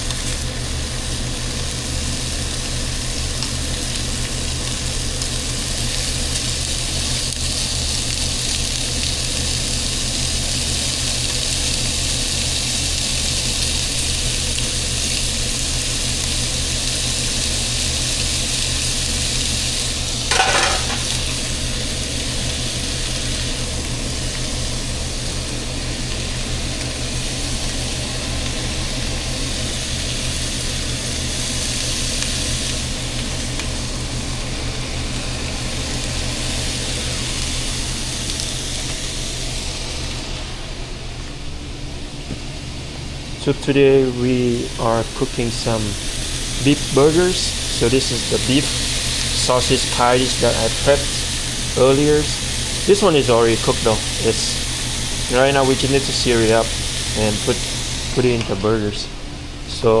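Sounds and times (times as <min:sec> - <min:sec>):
food sizzling in a hot pan: 0:00.0 - 0:40.7, 0:44.2 - 0:59.6
bright clink or scrape: 0:20.3 - 0:21.2.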